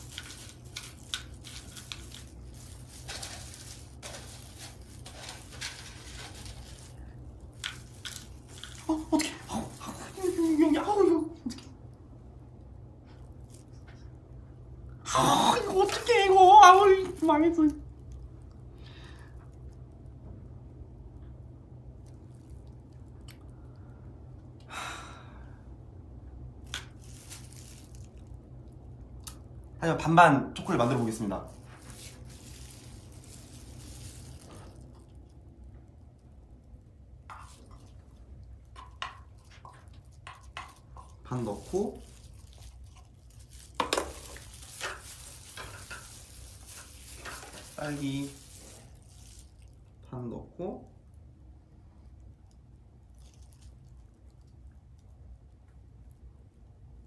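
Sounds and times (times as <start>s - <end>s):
steady low hum: 0.0s - 16.6s, 17.2s - 53.2s
person sighing: 24.7s - 25.6s.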